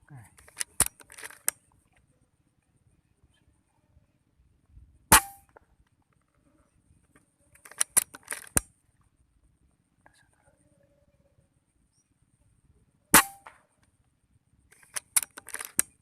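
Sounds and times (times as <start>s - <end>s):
sharp clicks: 0.3s - 1.7s, 7.6s - 8.7s, 14.7s - 16.0s
air rifle shot: 5.1s - 5.4s, 13.2s - 13.5s.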